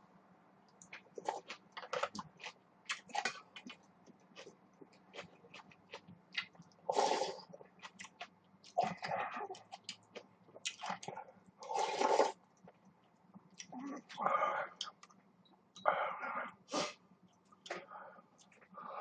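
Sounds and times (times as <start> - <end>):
wet chewing and mouth smacks: 0.7 - 6.8, 7.4 - 11.2.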